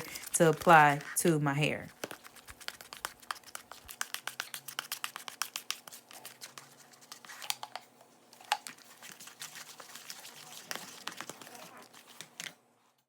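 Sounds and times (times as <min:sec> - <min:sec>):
paste stirred in a bowl: 0:00.0 - 0:12.6.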